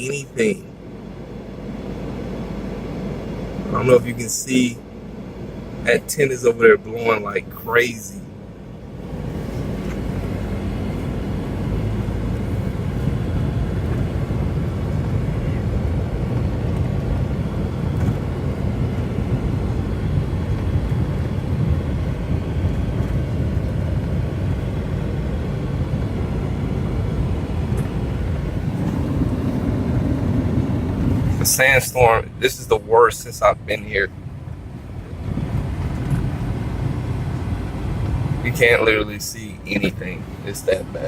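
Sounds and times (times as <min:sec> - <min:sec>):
wind buffeting microphone: 0:09.1 - 0:31.5, 0:34.1 - 0:38.5.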